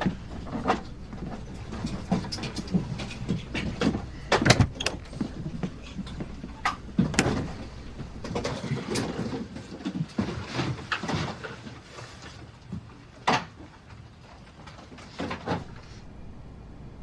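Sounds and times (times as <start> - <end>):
low background noise: 0.0 - 17.0.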